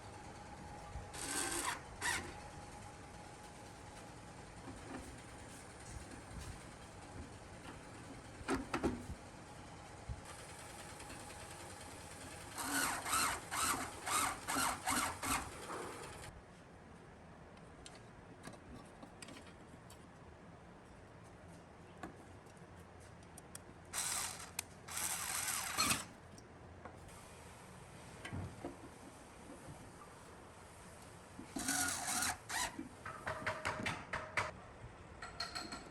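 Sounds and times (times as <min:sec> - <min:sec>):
short mechanical tool bursts: 0:24.0 - 0:26.1.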